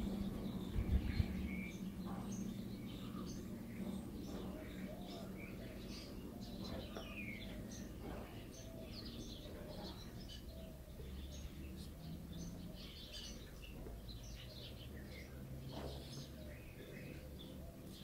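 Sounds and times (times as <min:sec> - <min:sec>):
low steady rumble: 0:00.0 - 0:07.8
small birds chirping: 0:00.0 - 0:18.0.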